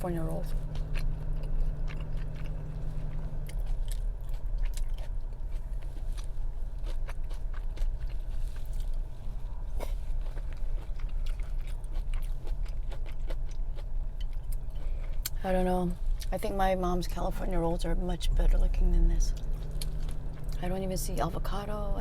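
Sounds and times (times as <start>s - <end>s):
steady low hum: 0.0s - 22.0s
person chewing food: 0.1s - 15.4s, 19.3s - 20.6s
small crunches: 0.4s - 15.4s, 19.3s - 20.6s.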